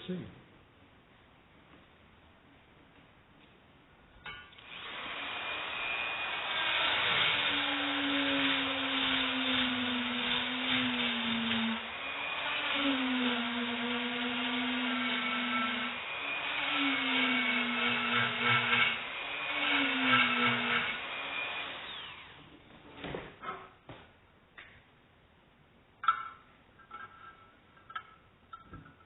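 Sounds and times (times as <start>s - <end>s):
electric power tool motor: 4.6s - 22.4s.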